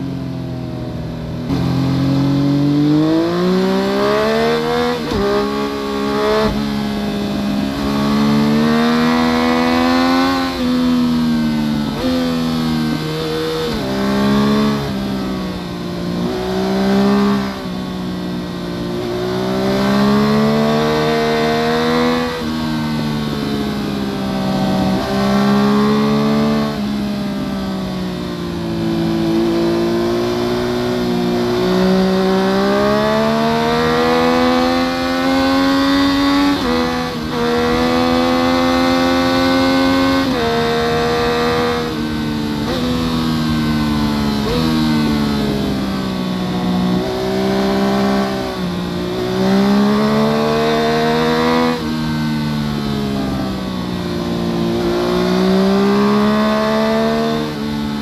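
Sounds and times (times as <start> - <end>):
motorcycle engine revving: 1.1 - 17.8, 18.4 - 58.0.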